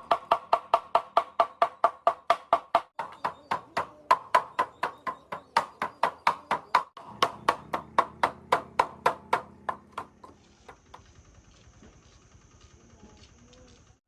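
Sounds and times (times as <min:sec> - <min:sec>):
rapid knocking: 0:00.0 - 0:11.2.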